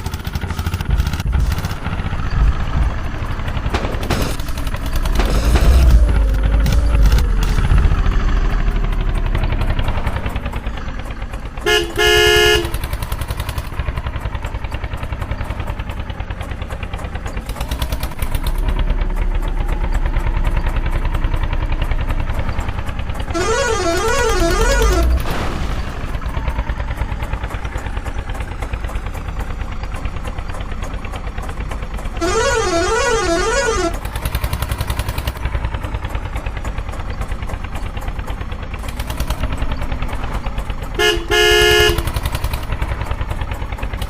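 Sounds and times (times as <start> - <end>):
tractor diesel engine: 0.0 - 44.0
warbling musical horn: 11.6 - 12.8, 23.2 - 25.2, 32.2 - 34.0
horn tooting: 11.6 - 13.8, 23.1 - 25.3, 32.1 - 34.5, 40.9 - 42.8.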